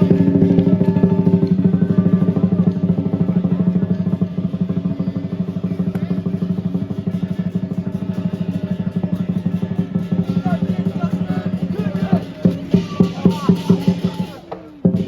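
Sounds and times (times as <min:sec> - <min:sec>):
cymbals and gong ringing: 0:00.0 - 0:15.0
drum roll: 0:00.0 - 0:15.0.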